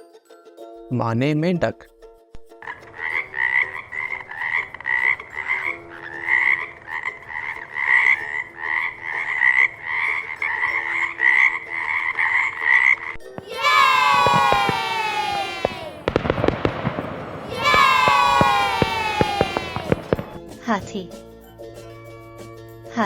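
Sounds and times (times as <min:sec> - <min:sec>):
frog croaking: 0:02.7 - 0:13.2.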